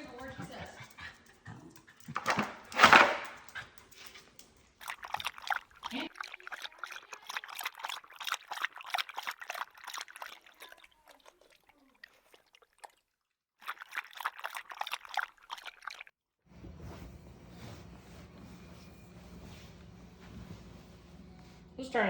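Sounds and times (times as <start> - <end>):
dog lapping water: 3.3 - 16.1.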